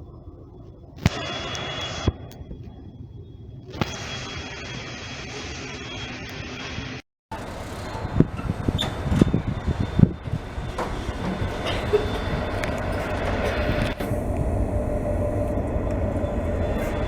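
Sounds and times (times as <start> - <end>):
diesel locomotives rumbling: 7.3 - 17.0
train knocks and clunks: 7.3 - 17.0.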